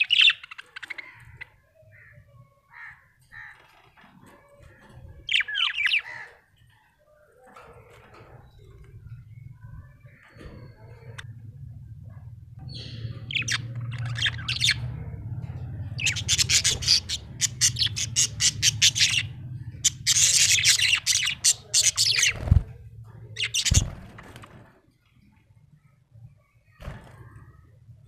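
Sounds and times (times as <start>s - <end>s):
parrot chirping and squawking: 0.0s - 2.2s, 15.8s - 22.4s, 23.4s - 23.9s.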